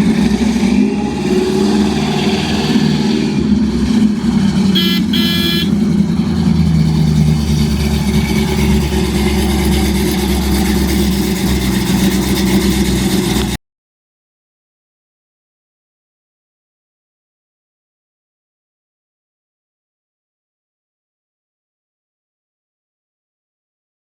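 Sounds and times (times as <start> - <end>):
car engine running: 1.7 - 13.6
high-pitched two-part tone: 4.8 - 5.8.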